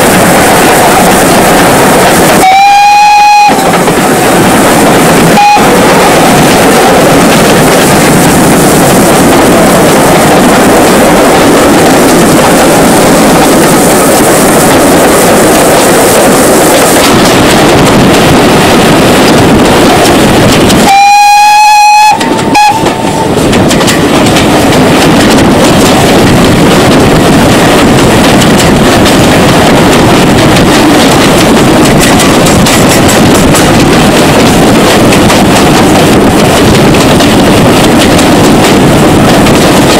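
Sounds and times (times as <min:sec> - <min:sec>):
steam train rumbling: 0:00.0 - 0:39.9
steam locomotive whistle: 0:02.4 - 0:03.7, 0:05.3 - 0:05.7, 0:20.8 - 0:23.1.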